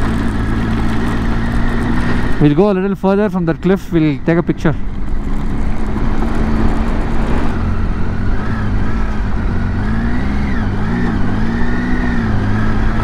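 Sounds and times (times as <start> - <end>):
motorcycle engine cruising: 0.0 - 13.0
wind rush on microphone: 4.8 - 9.7.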